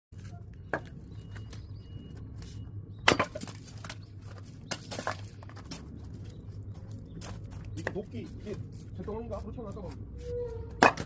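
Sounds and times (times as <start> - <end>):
axe striking firewood: 3.0 - 3.6, 10.8 - 11.0.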